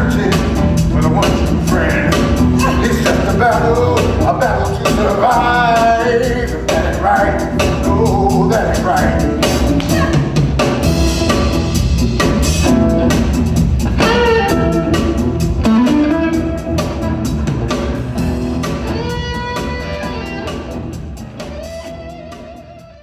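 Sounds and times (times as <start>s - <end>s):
instrumental blues guitar and drums: 0.0s - 23.0s.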